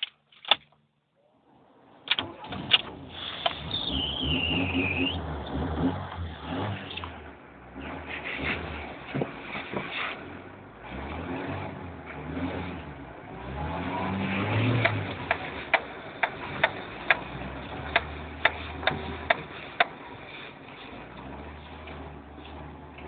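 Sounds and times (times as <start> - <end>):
car engine accelerating: 1.2 - 23.0.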